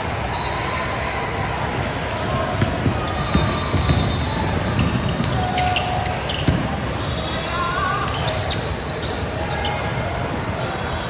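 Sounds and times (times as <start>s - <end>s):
voices in background: 0.0s - 11.0s
basketball bouncing on floor: 2.6s - 5.4s, 6.3s - 6.9s.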